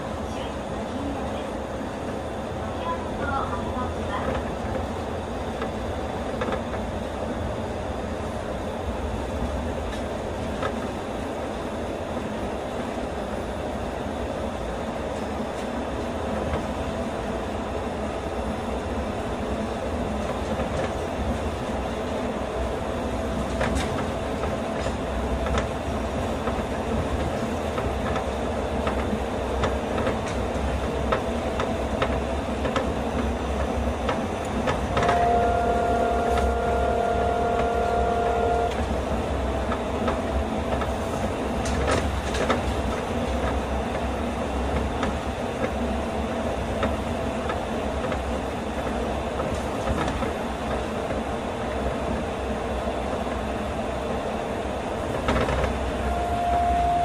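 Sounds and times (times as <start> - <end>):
train rumbling: 0.0 - 57.0
steady tone: 34.9 - 38.8, 56.0 - 57.0.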